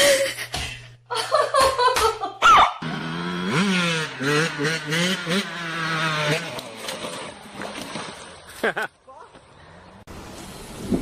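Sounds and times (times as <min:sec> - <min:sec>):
motorbike engine revving: 0:02.8 - 0:08.2.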